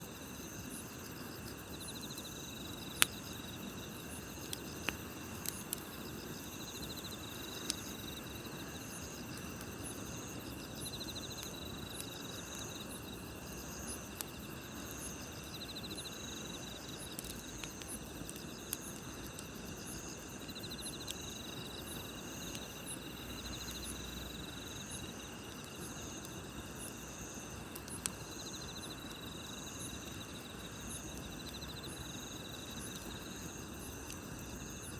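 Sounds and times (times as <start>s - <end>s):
campfire hissing: 0.0s - 34.9s
crickets chirping: 0.0s - 34.9s
burning wood popping and crackling: 1.1s - 34.9s.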